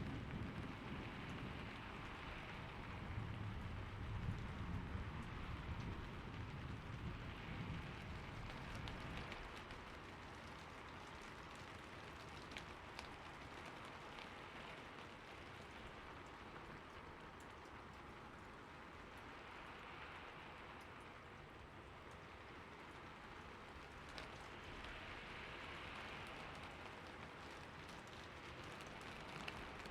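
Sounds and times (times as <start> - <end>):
low thunder rumble: 0.0 - 9.5
steady rain falling: 0.0 - 29.9.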